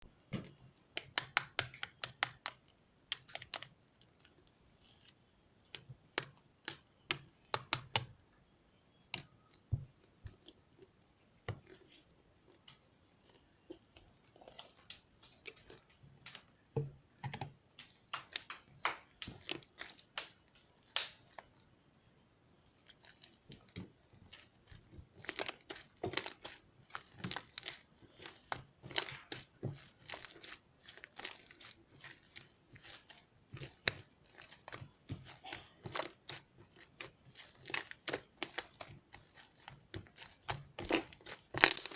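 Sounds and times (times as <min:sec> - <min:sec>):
sharp clicks and crinkles: 0:11.5 - 0:16.5, 0:17.2 - 0:21.6, 0:22.7 - 0:41.9.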